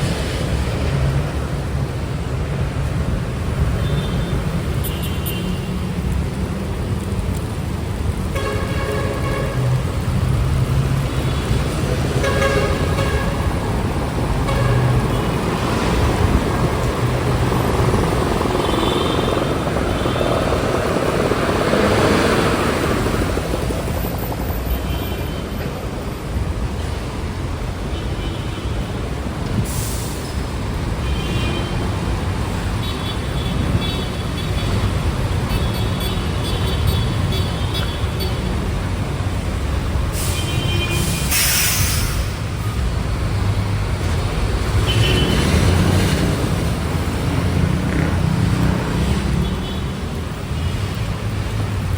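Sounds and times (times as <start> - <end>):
heavy rain: 0.0 - 24.7, 37.0 - 51.9
wet road noise: 0.0 - 51.9
vehicle passing: 9.7 - 24.7, 43.0 - 49.5.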